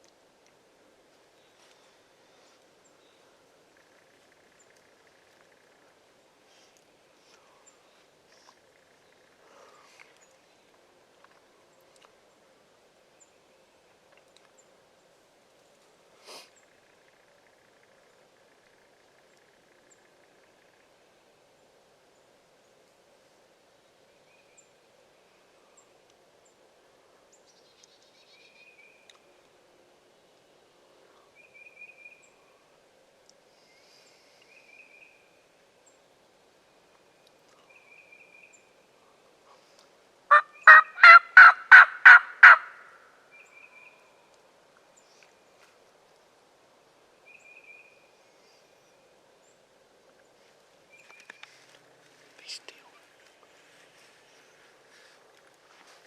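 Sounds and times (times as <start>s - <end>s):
turkey gobbling: 40.3s - 42.9s.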